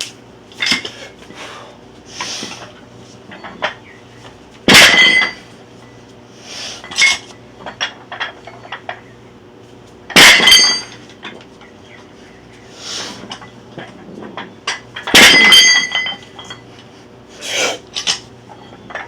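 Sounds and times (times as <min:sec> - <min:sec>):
weight plates clanking: 0:13.4 - 0:16.6.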